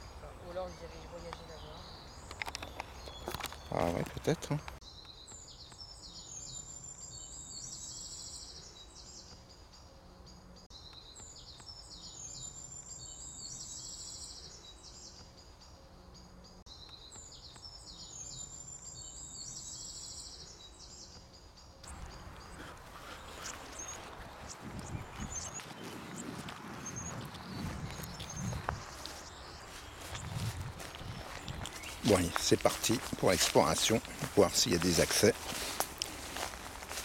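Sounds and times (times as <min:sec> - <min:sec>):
rustling crackling noise: 0:21.9 - 0:37.0.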